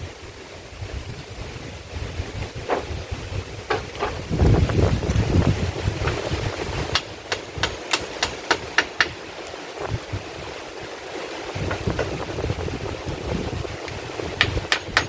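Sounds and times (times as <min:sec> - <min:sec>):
rain: 0:00.0 - 0:15.0
wind: 0:00.0 - 0:15.0
sharp knocks: 0:03.7 - 0:04.2.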